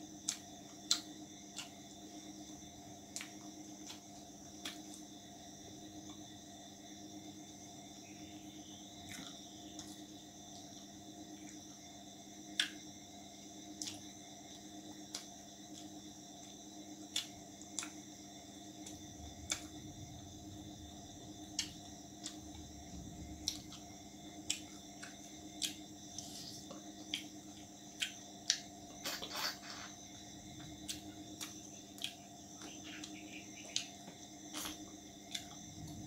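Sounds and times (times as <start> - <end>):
background hum: 0.0 - 36.0
wet chewing clicks and smacks: 0.1 - 2.1, 3.0 - 5.1, 12.5 - 12.9, 13.7 - 20.2, 21.4 - 29.0, 30.6 - 36.0.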